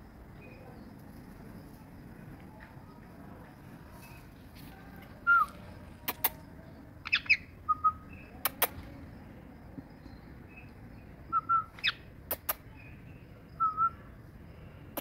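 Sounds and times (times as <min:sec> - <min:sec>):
sharp clicks: 0:06.0 - 0:06.4, 0:08.4 - 0:08.9, 0:11.8 - 0:12.7
bird chirps and whistles: 0:07.1 - 0:08.3, 0:11.3 - 0:12.0, 0:13.6 - 0:14.0.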